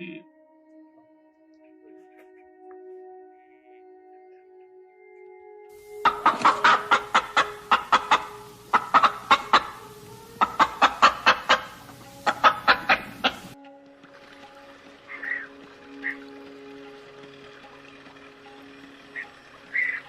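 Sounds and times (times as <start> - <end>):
soft background music: 0.0 - 20.0
bird clucking: 5.9 - 13.6, 19.2 - 20.0.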